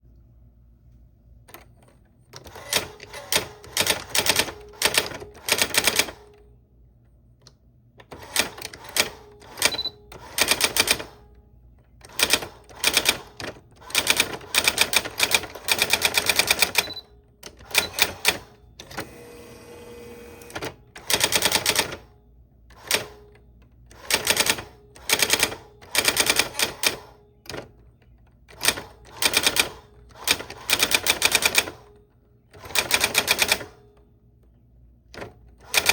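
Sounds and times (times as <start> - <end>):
typewriter keystrokes clacking: 2.4 - 6.3, 8.1 - 11.1, 12.0 - 19.0, 20.5 - 22.0, 22.8 - 27.9, 28.5 - 33.8, 35.1 - 35.9.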